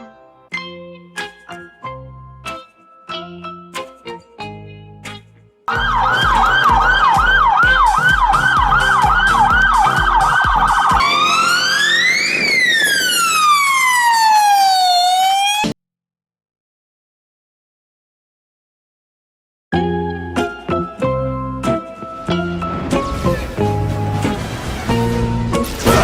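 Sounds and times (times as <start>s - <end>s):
electronic siren yelp and wail: 5.7s - 15.8s.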